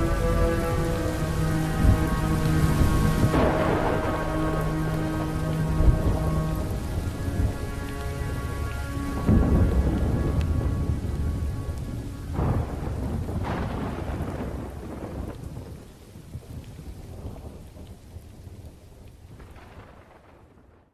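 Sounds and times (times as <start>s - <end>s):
slowed reverb-drenched music: 0.0s - 14.8s
deep rolls of thunder: 0.0s - 18.3s
steady rain: 0.0s - 20.9s.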